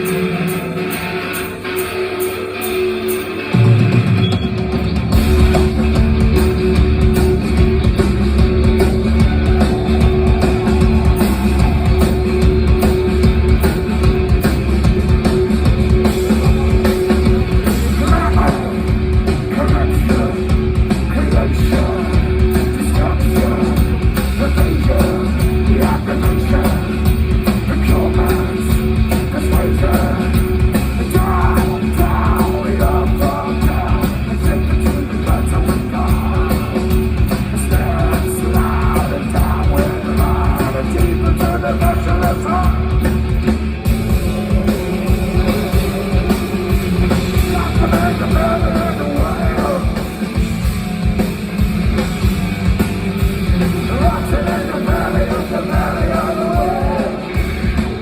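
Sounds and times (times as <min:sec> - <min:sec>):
rock band playing live: 0:00.0 - 0:58.0
person singing: 0:15.4 - 0:50.4, 0:53.2 - 0:58.0.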